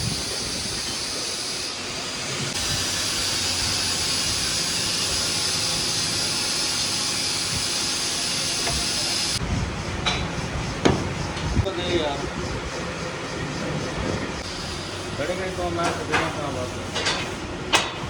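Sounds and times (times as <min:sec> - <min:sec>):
loud steady hiss: 0:00.0 - 0:17.8
low knocks: 0:10.0 - 0:11.5.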